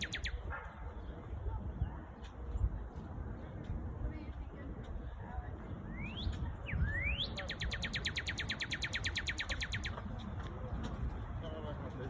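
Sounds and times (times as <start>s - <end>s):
bird singing whistles and trill: 0.0s - 0.4s, 5.8s - 10.0s.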